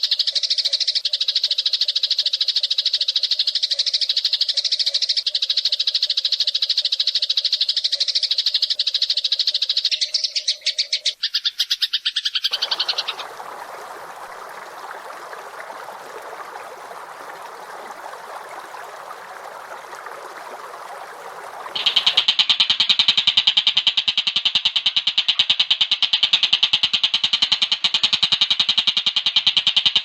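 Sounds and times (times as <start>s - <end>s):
scratchy bird chatter: 15.2s - 22.2s.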